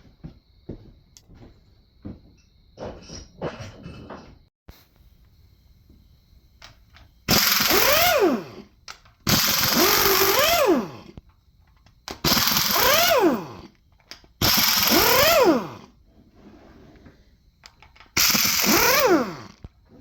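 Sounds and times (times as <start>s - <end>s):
impact wrench bursts: 7.3s - 11.2s, 12.1s - 16.0s, 18.0s - 19.7s.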